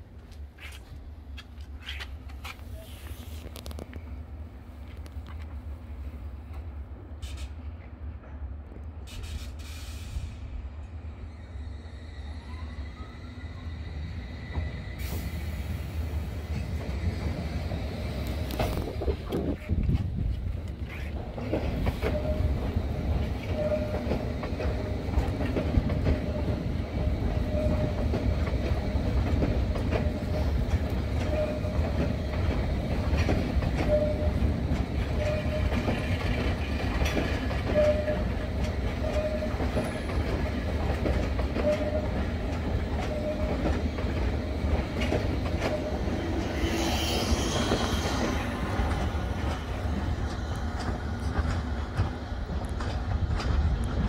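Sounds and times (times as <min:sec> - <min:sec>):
train rumbling over rail joints: 0:00.0 - 0:54.0
wheels screeching on rail: 0:07.2 - 0:07.8, 0:11.3 - 0:52.2.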